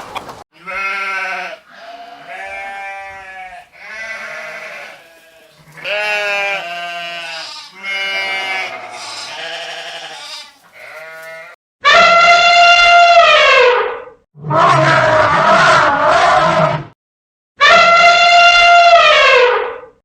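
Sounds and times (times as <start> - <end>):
wavering bleating calls: 0.6 - 13.6.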